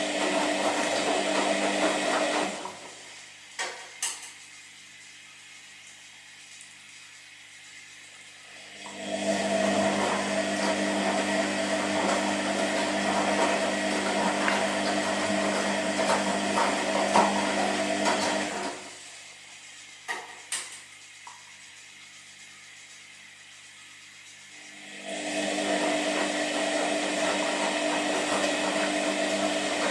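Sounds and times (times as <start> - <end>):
washing machine drum turning: 0.0 - 3.0, 8.9 - 18.9, 25.2 - 29.9.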